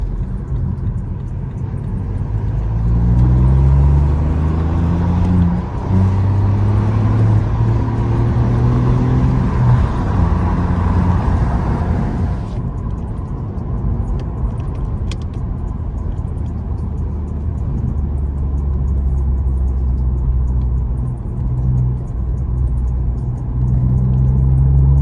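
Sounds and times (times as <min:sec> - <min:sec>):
car engine accelerating hard: 0:00.0 - 0:12.7, 0:16.0 - 0:25.0.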